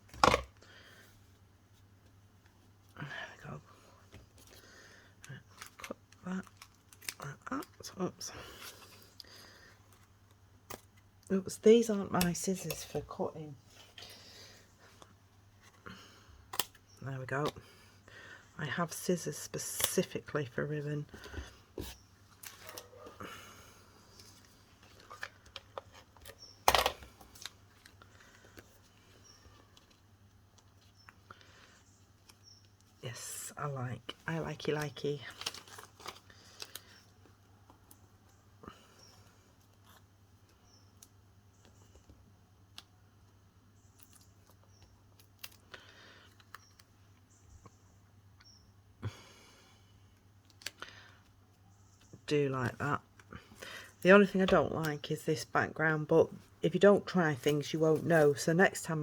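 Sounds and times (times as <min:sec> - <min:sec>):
rustling and clicks of craft materials: 0:24.1 - 0:33.0.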